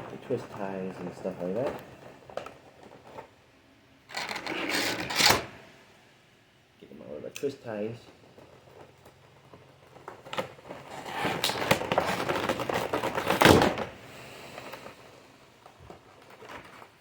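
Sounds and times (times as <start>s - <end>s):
plastic packaging crackling: 8.2s - 17.0s.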